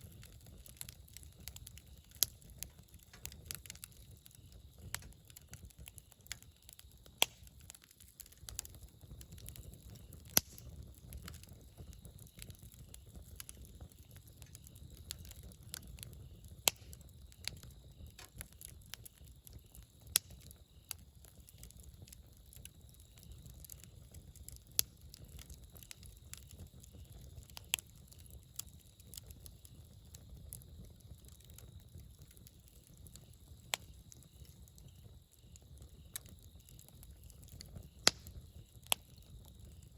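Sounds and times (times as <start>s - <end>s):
sharp fire pops: 0.0s - 21.7s, 31.1s - 39.9s
wood fire crackling: 0.0s - 39.9s.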